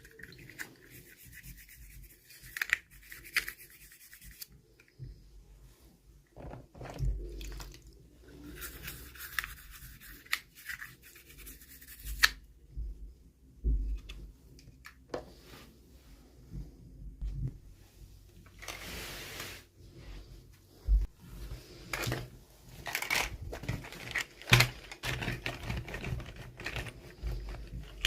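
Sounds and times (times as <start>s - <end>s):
toy packaging rustling: 18.5s - 19.0s, 21.8s - 28.0s.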